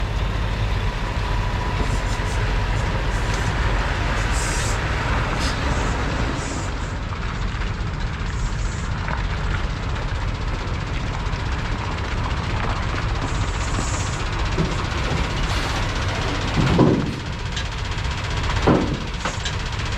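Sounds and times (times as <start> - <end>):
road noise: 0.0 - 19.9
truck engine rumble: 0.0 - 19.9
air brake hisses: 1.8 - 6.8.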